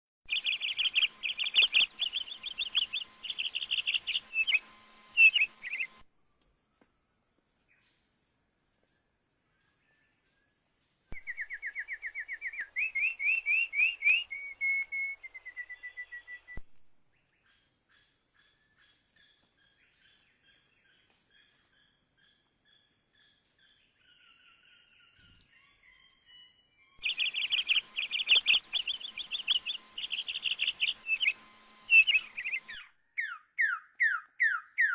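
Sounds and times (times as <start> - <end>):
high-pitched insect drone: 0.3 - 6.8, 21.8 - 32.9
songbirds chirping: 0.3 - 6.9, 9.5 - 34.9.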